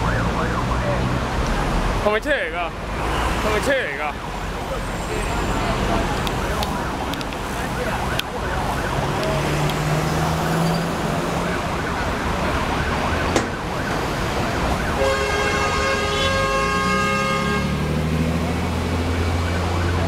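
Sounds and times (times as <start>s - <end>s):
emergency vehicle siren: 0.0s - 2.0s, 3.0s - 20.0s
road traffic: 0.0s - 20.0s
loud multi-note horn: 15.0s - 17.9s.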